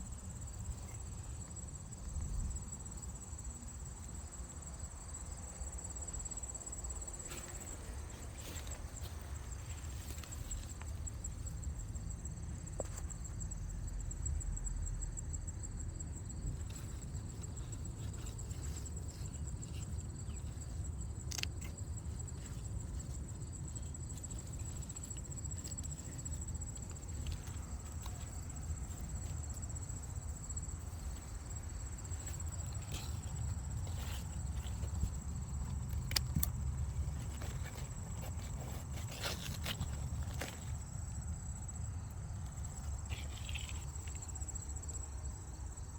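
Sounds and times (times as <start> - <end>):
crickets chirring: 0.0 - 45.9
clicks and rustles: 16.5 - 41.0, 42.4 - 44.9.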